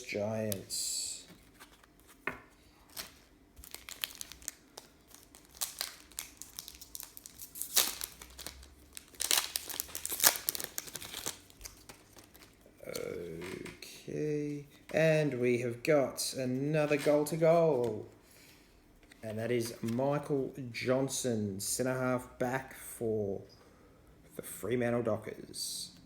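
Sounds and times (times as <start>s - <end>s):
packaging rustling and crinkling: 1.3s - 12.7s
packaging crackling bursts: 2.8s - 13.1s.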